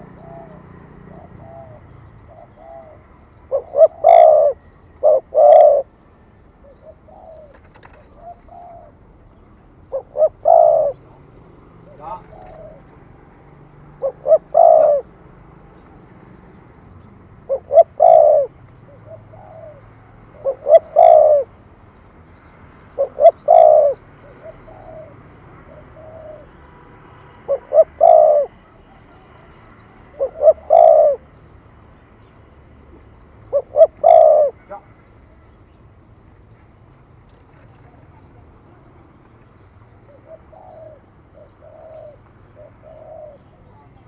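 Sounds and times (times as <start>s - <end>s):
dove cooing: 0.0s - 21.8s, 22.7s - 32.6s, 33.4s - 36.1s, 37.5s - 44.0s.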